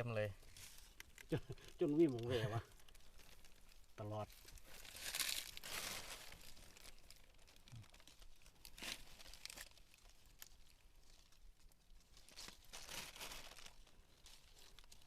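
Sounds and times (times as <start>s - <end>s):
leaves rustling and crinkling: 0.0s - 15.0s
twigs snapping: 0.8s - 3.8s, 4.5s - 7.2s.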